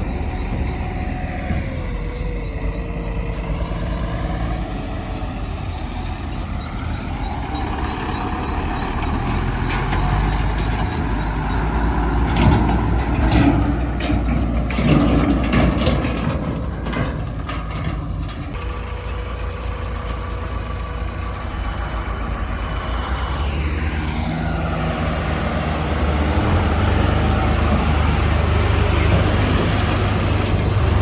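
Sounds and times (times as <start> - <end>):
diesel engine revving: 0.0 - 31.0
knocks and clatter: 9.0 - 18.7.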